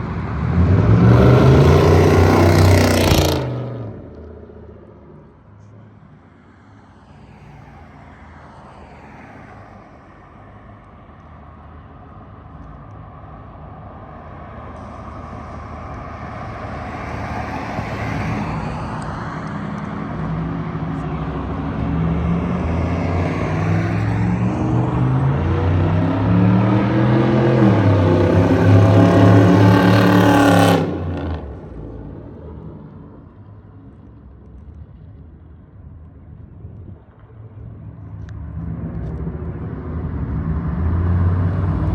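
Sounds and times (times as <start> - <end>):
loud car exhaust accelerating: 0.0 - 5.3, 19.5 - 33.0.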